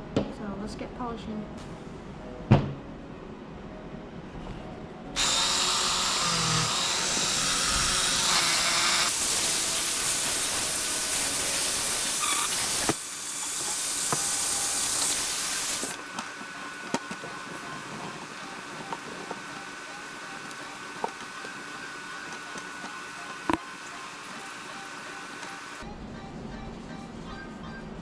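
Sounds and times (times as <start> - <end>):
power tool polishing metal: 5.2 - 25.8.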